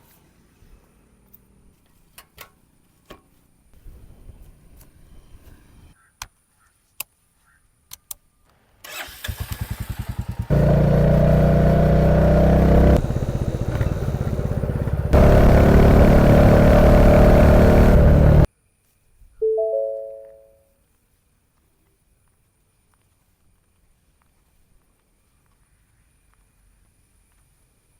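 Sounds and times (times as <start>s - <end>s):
motorcycle engine running: 9.6s - 18.5s.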